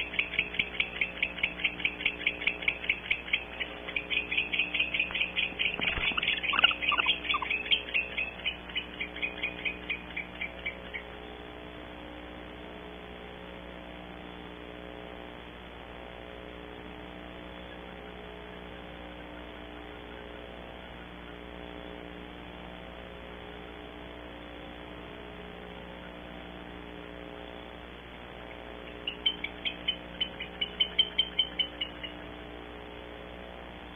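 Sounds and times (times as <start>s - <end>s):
owls twittering: 0.0s - 11.4s, 28.4s - 32.4s
electrical hum: 0.0s - 33.9s.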